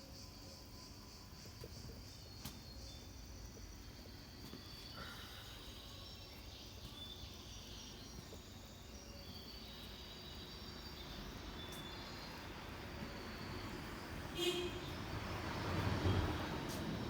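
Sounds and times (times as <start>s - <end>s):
faint outdoor background noise: 0.0s - 17.0s
small birds chirping: 1.6s - 15.0s.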